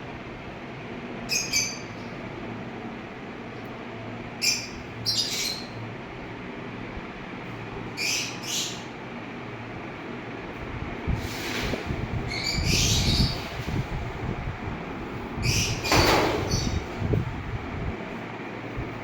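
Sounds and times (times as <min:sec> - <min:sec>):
birds calling sharply: 0:01.2 - 0:02.1, 0:04.4 - 0:05.9, 0:07.9 - 0:09.0, 0:12.1 - 0:14.0, 0:15.4 - 0:17.2.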